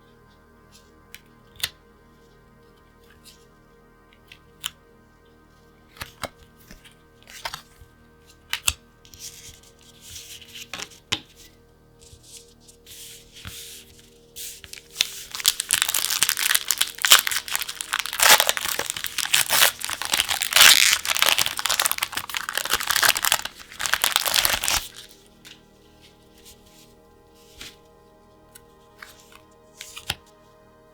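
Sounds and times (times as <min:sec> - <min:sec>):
faint background music: 0:00.0 - 0:30.9
packaging torn and crinkled: 0:14.6 - 0:25.2
packaging clicks and rustles: 0:14.6 - 0:25.6.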